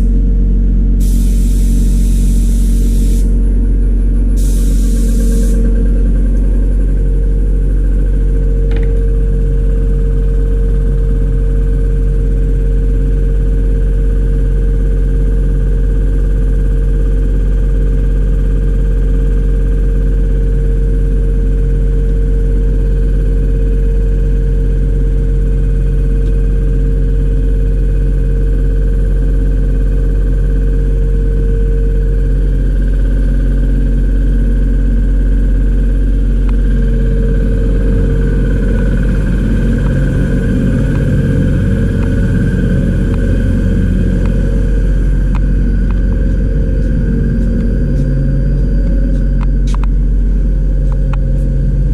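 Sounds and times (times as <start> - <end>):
machine motor humming: 0.0 - 12.2, 35.2 - 51.9.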